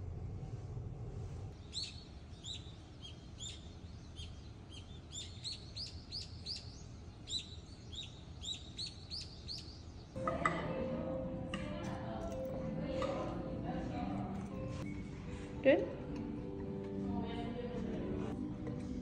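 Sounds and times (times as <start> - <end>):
low steady rumble: 0.0 - 1.6
small birds chirping: 1.6 - 10.2.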